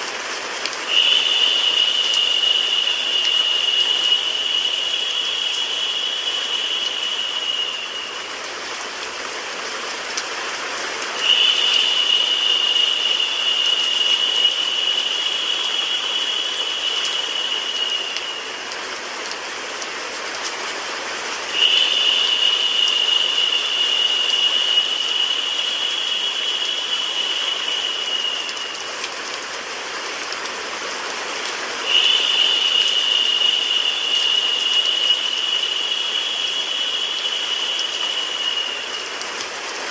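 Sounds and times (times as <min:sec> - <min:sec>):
steady white noise hiss: 0:00.0 - 0:39.9
bright high hiss: 0:00.8 - 0:09.0, 0:11.2 - 0:19.1, 0:21.5 - 0:29.0, 0:31.8 - 0:39.2.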